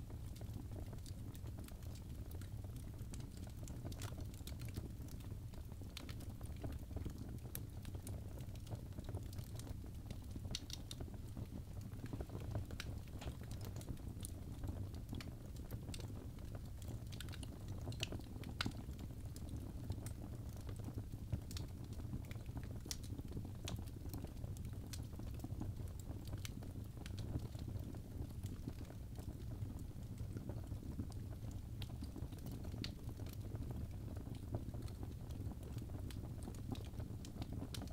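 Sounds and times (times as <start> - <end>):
fire crackling and popping: 0.0 - 37.9
low rumble of flame: 0.0 - 37.9.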